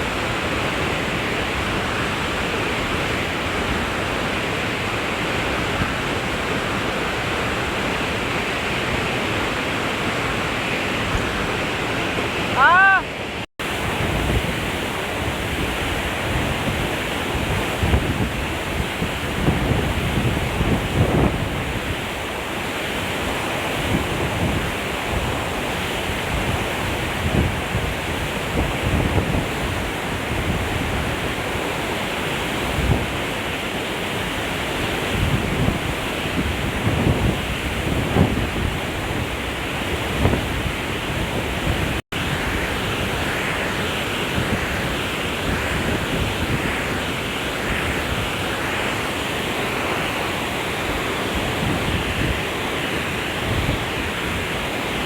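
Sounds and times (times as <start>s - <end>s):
waterfall rushing: 0.0s - 19.6s, 20.5s - 55.0s
wind buffeting on microphone: 13.6s - 55.0s.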